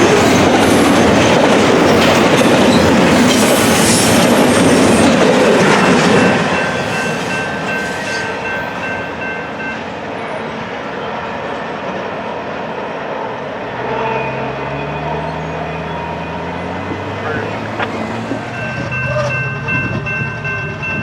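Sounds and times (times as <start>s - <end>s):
train clattering past: 0.0s - 21.0s
high steady tones: 13.9s - 21.0s.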